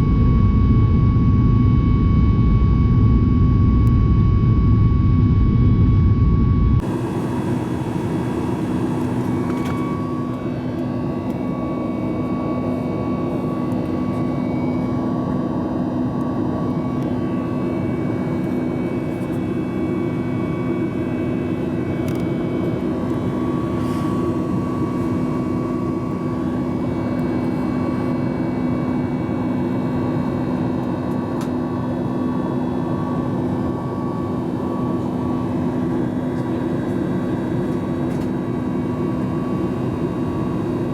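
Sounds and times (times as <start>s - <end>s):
steady hums: 0.0s - 13.8s
faint whine: 0.0s - 26.9s
jet engine noise: 0.0s - 40.9s
airplane cabin air rush: 23.1s - 25.6s.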